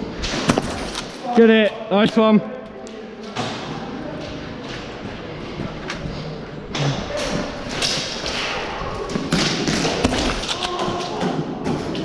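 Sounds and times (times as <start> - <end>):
rustling noise: 0.0 - 1.2.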